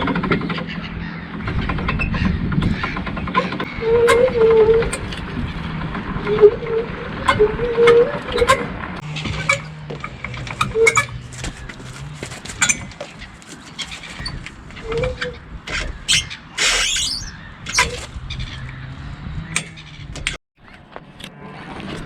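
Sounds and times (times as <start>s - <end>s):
idling vehicle hum: 0.0s - 16.6s.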